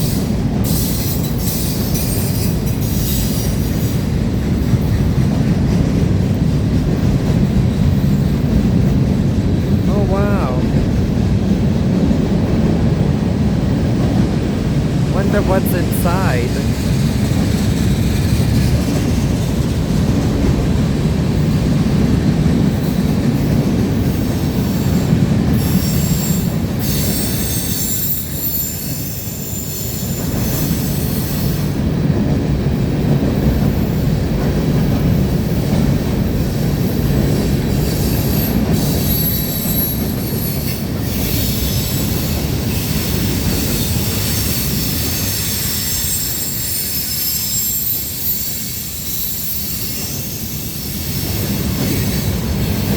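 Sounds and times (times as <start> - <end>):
steel wheels squealing: 44.9 - 51.4.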